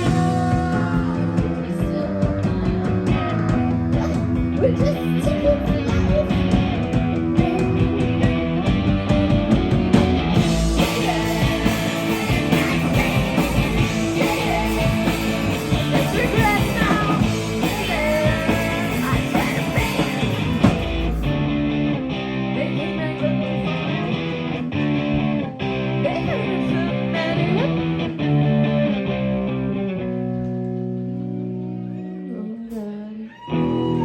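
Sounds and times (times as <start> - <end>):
person singing: 0.0 - 8.9, 10.4 - 21.6, 22.4 - 24.2, 25.9 - 28.0, 32.0 - 34.0
drums and cymbals: 0.0 - 22.6
distorted electric guitars: 0.0 - 32.0.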